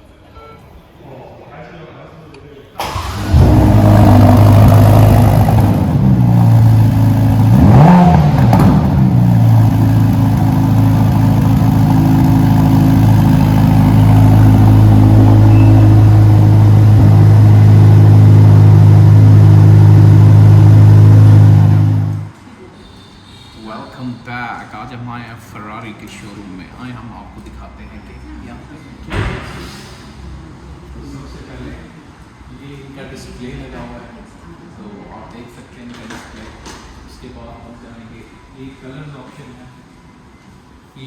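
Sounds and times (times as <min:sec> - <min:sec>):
engine rev blip: 0:02.8 - 0:22.3
car engine idling loudly: 0:03.0 - 0:22.3.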